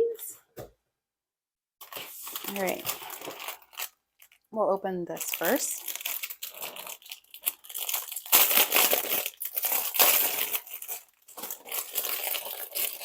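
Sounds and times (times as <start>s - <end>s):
packaging crinkling: 1.8s - 4.5s, 5.1s - 13.0s.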